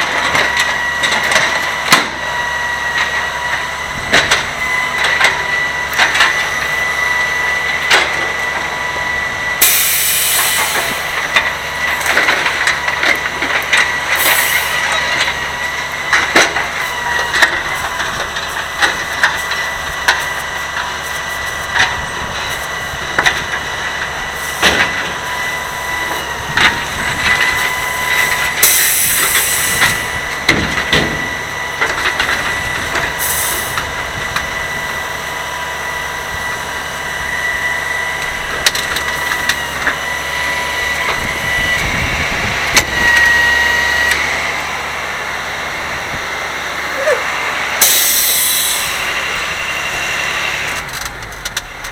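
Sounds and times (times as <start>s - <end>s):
garbage truck whine: 0.0s - 51.9s
knocks and clunks: 29.8s - 33.1s.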